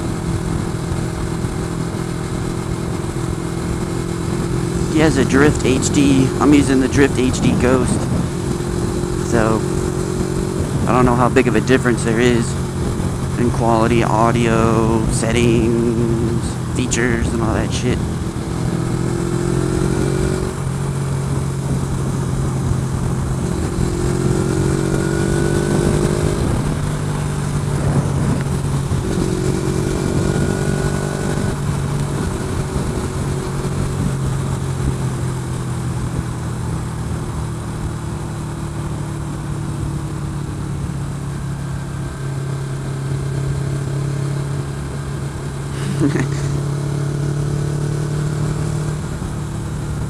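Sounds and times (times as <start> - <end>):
motorcycle engine running: 0.0 - 50.0
wind rush on microphone: 7.5 - 10.9, 12.5 - 13.4, 18.0 - 37.2.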